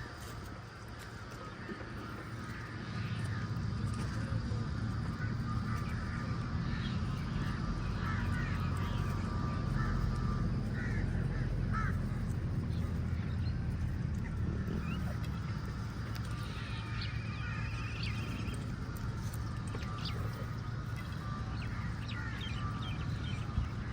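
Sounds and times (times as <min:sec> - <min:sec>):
steady low rumble: 0:00.0 - 0:23.9
crows cawing: 0:05.0 - 0:13.0, 0:21.1 - 0:23.9.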